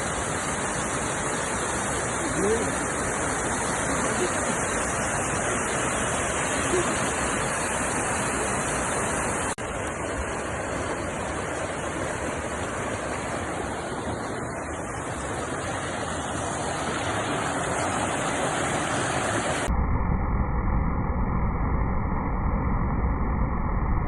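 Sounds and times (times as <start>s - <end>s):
waterfall rushing: 0.0s - 19.7s.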